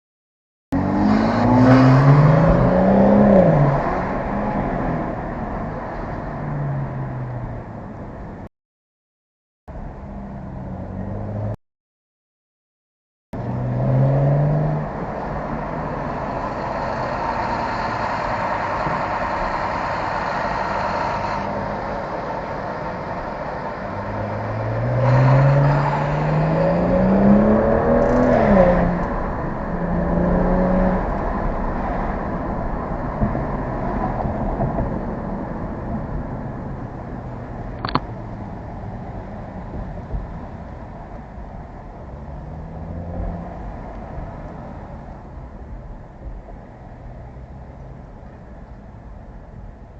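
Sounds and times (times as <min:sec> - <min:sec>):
car engine revving and accelerating: 0:00.8 - 0:07.6, 0:10.2 - 0:11.6, 0:13.4 - 0:21.7, 0:23.3 - 0:34.6, 0:42.1 - 0:44.9.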